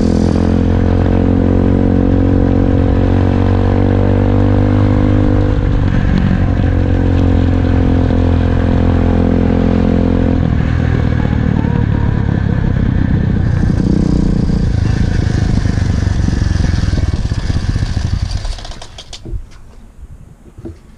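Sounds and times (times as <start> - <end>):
dirt bike engine running: 5.2 - 19.3.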